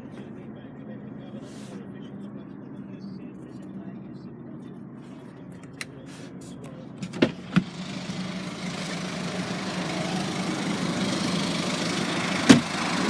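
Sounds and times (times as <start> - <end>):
diesel engine idling: 7.0 - 13.0
hiss: 8.0 - 13.0.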